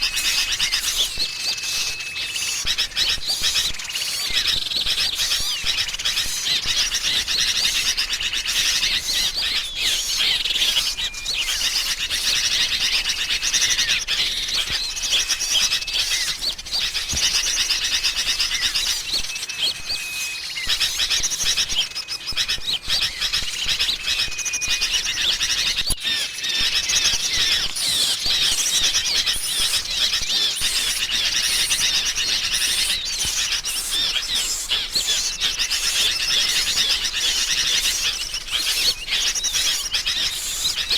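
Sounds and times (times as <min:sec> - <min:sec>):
short level whistles: 0:00.0 - 0:04.6
songbirds chattering and chirping: 0:00.0 - 0:40.9.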